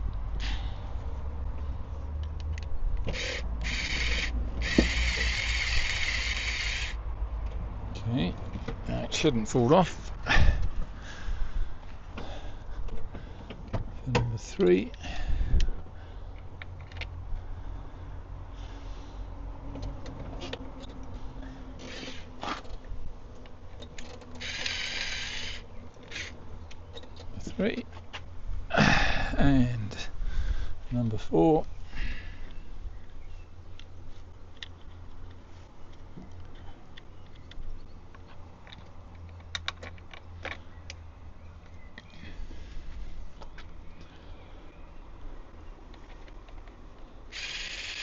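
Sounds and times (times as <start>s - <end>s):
ratchet spanner clicking: 3.1s - 7.0s, 24.0s - 26.4s, 47.3s - 48.0s.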